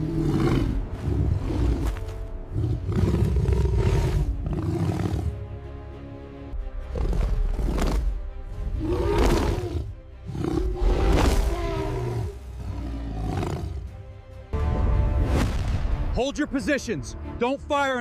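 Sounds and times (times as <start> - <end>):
lions roaring: 0.0 - 5.4, 6.9 - 13.9
background music: 0.0 - 18.0.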